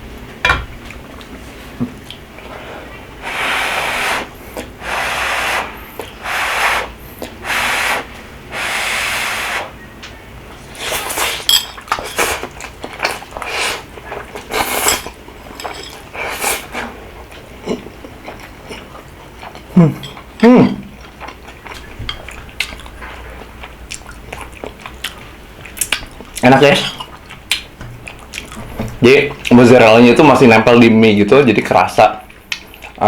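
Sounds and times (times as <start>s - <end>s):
noodle slurping: 3.2s - 9.8s, 10.7s - 15.0s
person blowing on hot food: 3.2s - 9.8s, 10.7s - 11.5s, 13.4s - 13.9s
chewing smacks: 11.8s - 15.4s, 17.2s - 29.6s, 32.2s - 33.0s.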